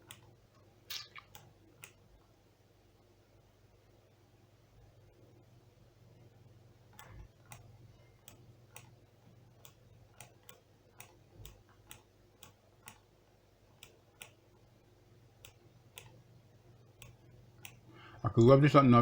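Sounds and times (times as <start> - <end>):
low electrical hum: 0.0 - 19.0
faint sharp clicks: 6.9 - 9.0.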